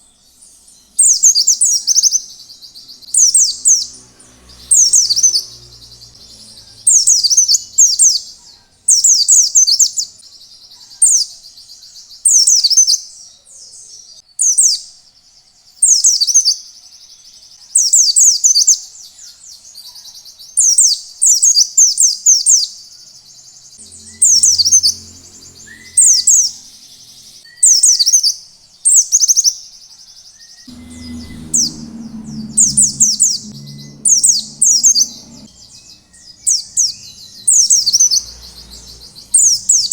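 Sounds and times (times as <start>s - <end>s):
bird chirping high and fast: 0.0s - 10.3s, 22.1s - 29.6s, 30.5s - 39.9s
low hum: 23.8s - 27.4s, 30.7s - 39.9s.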